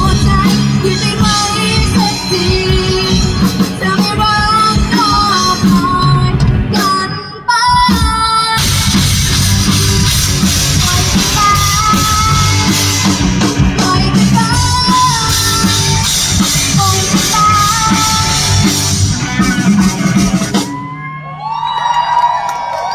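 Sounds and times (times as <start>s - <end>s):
woman singing: 0.0s - 9.0s, 10.7s - 19.0s
live rock band playing: 0.0s - 21.4s.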